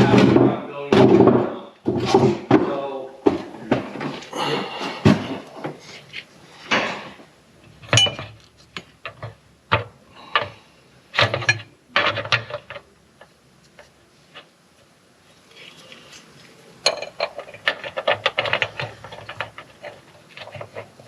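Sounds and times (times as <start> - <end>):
metal tools clinking: 7.8 - 8.4, 16.8 - 19.4.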